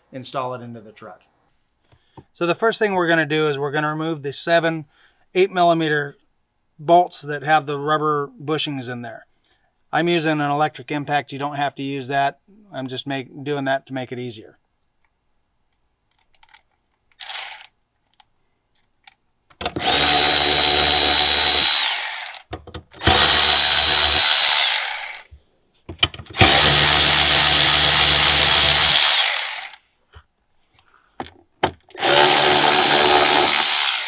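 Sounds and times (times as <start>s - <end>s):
electric impact wrench hammering: 17.2s - 17.7s, 19.6s - 25.3s, 26.0s - 29.8s, 31.7s - 34.0s.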